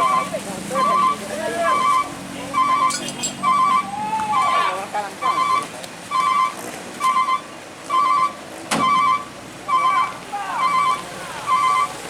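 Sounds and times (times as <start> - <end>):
reversing alarm beeping: 0.0 - 4.6, 5.2 - 12.0.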